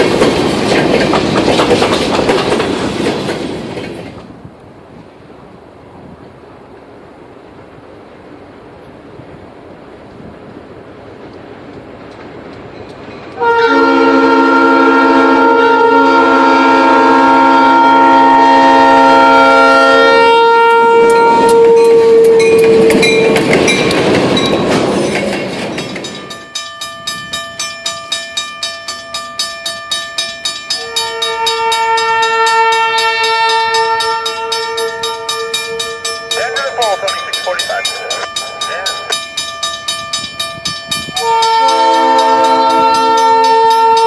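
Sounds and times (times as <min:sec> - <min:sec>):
wheels clacking over rail joints: 0:00.0 - 0:04.4, 0:10.1 - 0:13.6, 0:21.0 - 0:36.4
train air horn: 0:13.4 - 0:22.9, 0:30.8 - 0:36.0, 0:41.2 - 0:44.0
locomotive rushing past: 0:16.2 - 0:28.6, 0:30.4 - 0:44.0.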